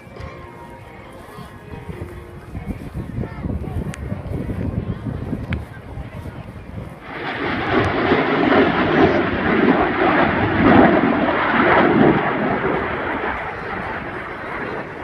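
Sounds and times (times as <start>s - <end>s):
airplane flying past: 6.9s - 15.0s.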